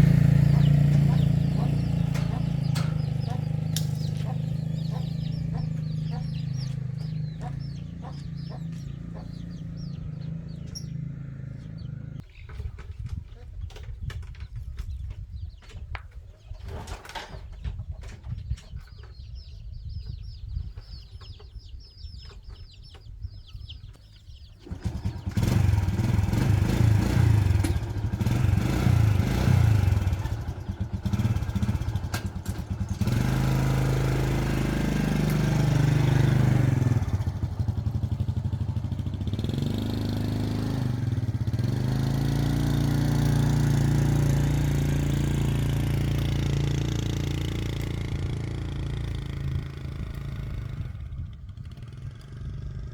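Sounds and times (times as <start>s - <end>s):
high chirping: 0.0s - 12.0s
small engine starting and idling: 0.0s - 14.2s, 24.3s - 52.9s.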